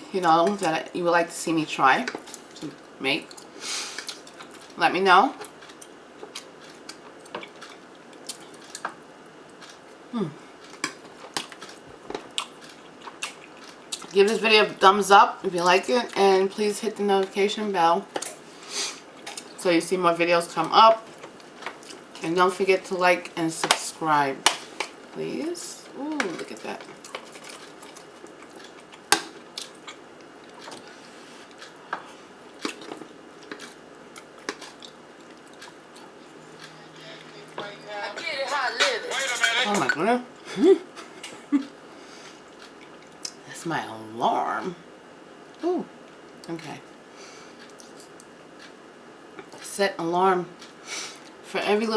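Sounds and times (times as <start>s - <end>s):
person chewing food: 2.1s - 4.8s, 5.4s - 14.2s, 18.1s - 19.6s, 21.0s - 22.2s, 25.9s - 37.7s, 40.9s - 43.4s, 47.5s - 49.6s.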